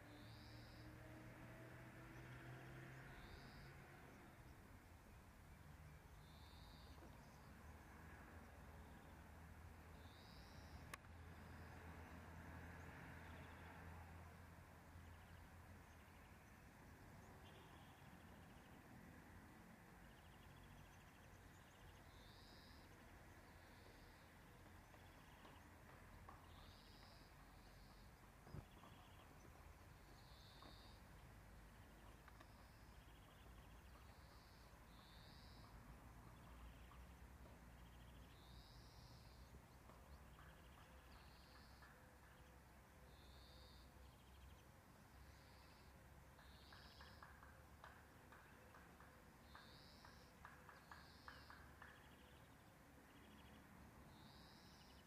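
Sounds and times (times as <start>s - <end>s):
distant high-pitched bird calls: 0.0s - 1.0s, 2.2s - 4.7s, 9.9s - 11.8s, 20.1s - 55.0s
faint ticks: 10.0s - 11.2s, 30.1s - 44.2s, 45.2s - 53.5s.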